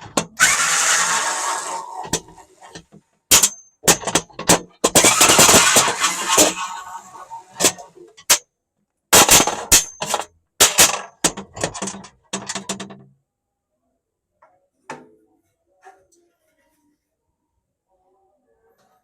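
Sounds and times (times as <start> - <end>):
metal clanks and knocks: 2.0 - 6.6, 9.2 - 13.2.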